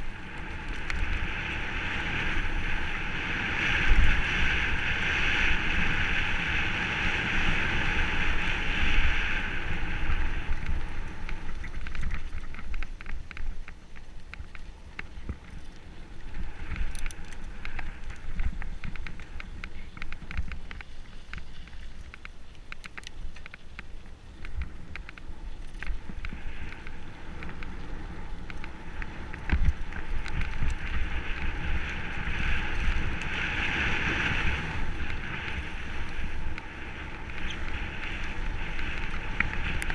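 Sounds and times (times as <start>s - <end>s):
tyre and wind rush: 0.0s - 22.2s, 24.1s - 39.9s
bike rattling clicks and knocks: 10.0s - 39.9s.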